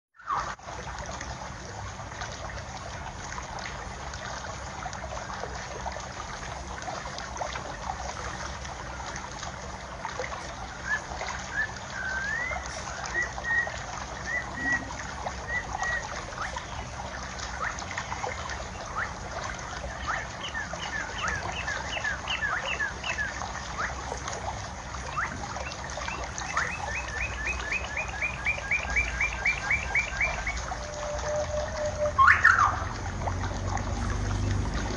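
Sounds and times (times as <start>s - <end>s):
water trickling: 0.2s - 34.9s
small birds chirping: 11.0s - 24.0s, 25.0s - 30.6s.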